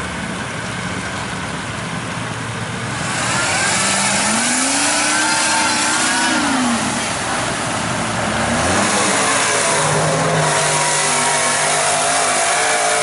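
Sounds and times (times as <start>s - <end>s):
constant rushing noise: 0.0s - 13.0s
steady engine note: 2.1s - 13.0s
truck engine revving: 2.7s - 13.0s.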